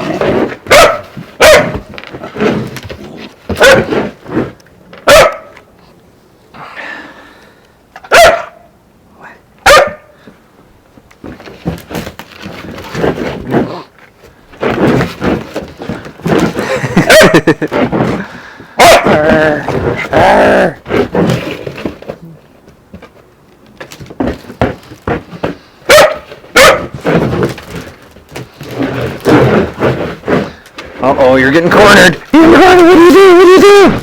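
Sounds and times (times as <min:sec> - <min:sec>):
puppy barking: 0:00.7 - 0:01.8, 0:03.6 - 0:03.9, 0:05.1 - 0:05.5, 0:08.1 - 0:08.6, 0:09.6 - 0:10.1, 0:18.8 - 0:19.2, 0:25.9 - 0:26.9.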